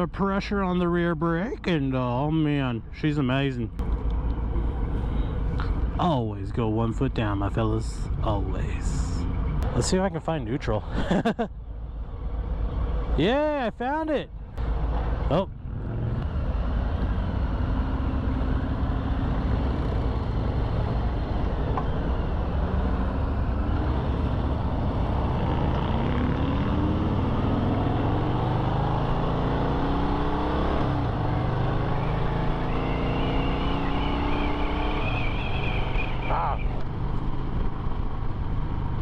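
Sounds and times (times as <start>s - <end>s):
motorcycle engine accelerating: 14.6s - 39.0s.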